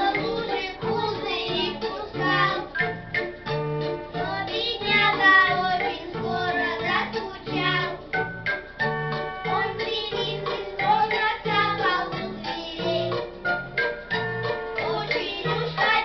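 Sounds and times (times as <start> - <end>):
child singing: 0.0 - 2.8, 4.2 - 8.1, 9.5 - 13.2, 14.8 - 16.0
instrumental accompaniment with beat: 0.0 - 16.0.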